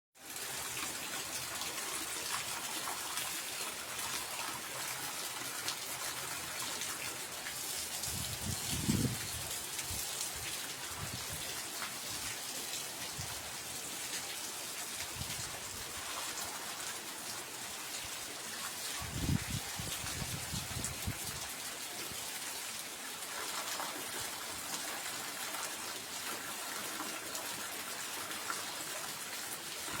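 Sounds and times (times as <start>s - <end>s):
heavy rain pouring: 0.2s - 30.0s.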